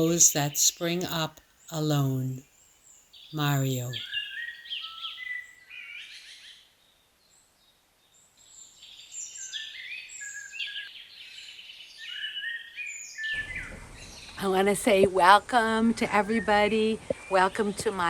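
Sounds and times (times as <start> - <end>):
small birds chirping: 0.0 - 6.6.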